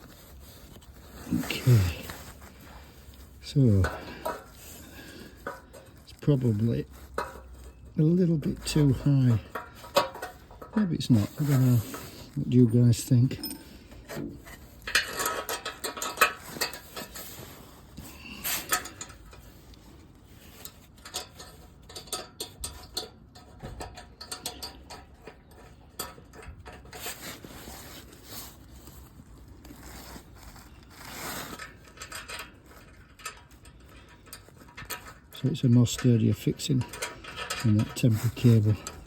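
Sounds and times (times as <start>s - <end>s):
metal clinks and scrapes: 0.0s - 39.0s.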